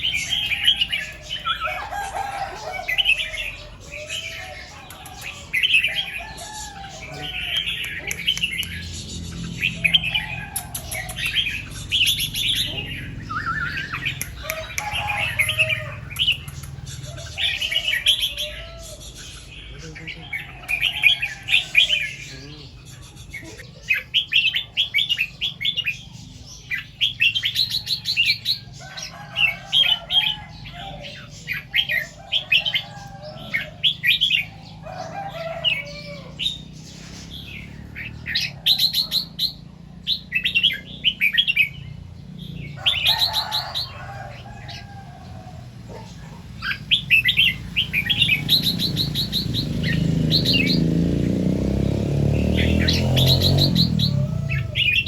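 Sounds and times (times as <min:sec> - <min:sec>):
bulbul singing chirpy phrases: 0:02.8 - 0:20.9, 0:21.8 - 0:24.2.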